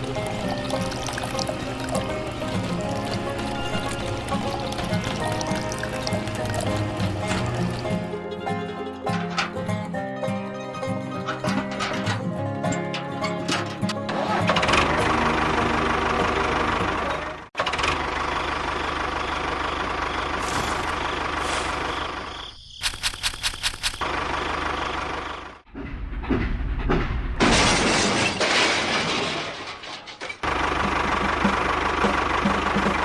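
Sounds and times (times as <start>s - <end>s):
small model motors running: 22.8s - 24.0s
sharp clicks: 22.8s - 24.1s.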